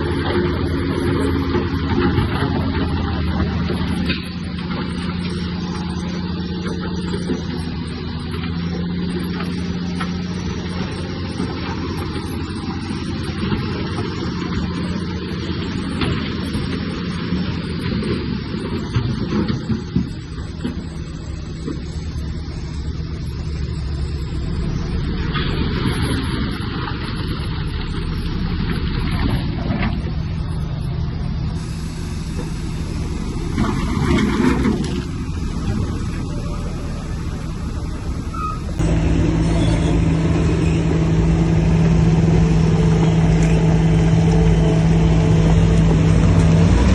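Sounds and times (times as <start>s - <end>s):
heavy diesel engine droning: 0.0s - 46.9s.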